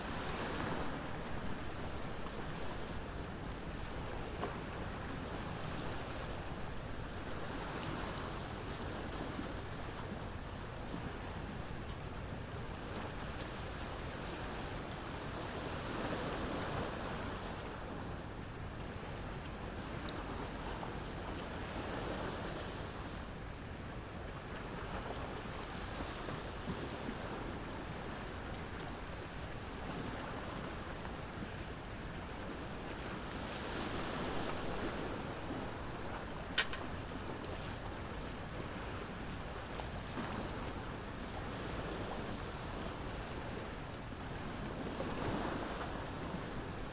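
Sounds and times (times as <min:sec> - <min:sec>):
sea waves washing ashore: 0:00.0 - 0:18.2, 0:24.6 - 0:46.9
wood fire crackling: 0:36.6 - 0:37.0.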